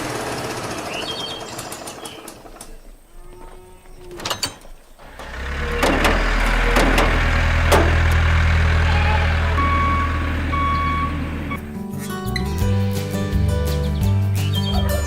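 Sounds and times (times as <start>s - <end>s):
heavy vehicle engine droning: 4.9s - 13.7s
reversing alarm beeps: 9.5s - 11.6s.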